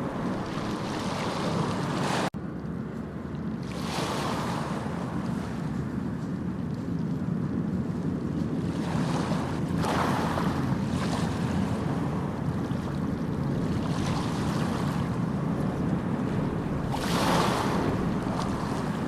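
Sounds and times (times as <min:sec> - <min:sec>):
sea waves rushing: 0:00.0 - 0:02.4, 0:03.6 - 0:05.8, 0:08.6 - 0:19.0
wave breaking: 0:00.0 - 0:02.4, 0:08.6 - 0:19.0.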